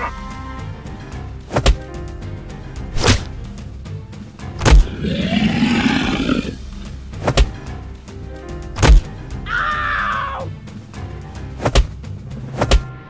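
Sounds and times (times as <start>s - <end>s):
background music: 0.0s - 13.0s
heavy hits: 4.5s - 7.6s, 8.8s - 9.2s
long animal roar: 4.8s - 7.0s
high animal cry: 4.9s - 6.6s, 9.5s - 10.5s.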